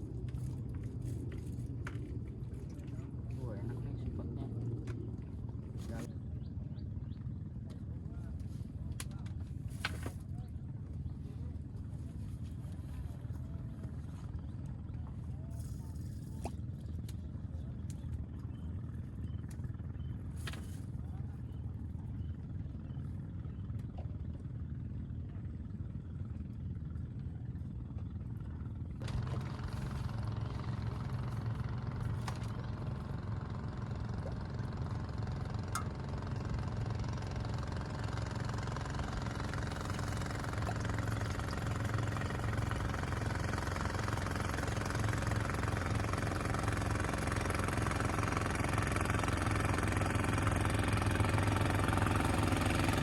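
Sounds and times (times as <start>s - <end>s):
small engine humming: 28.8s - 53.0s.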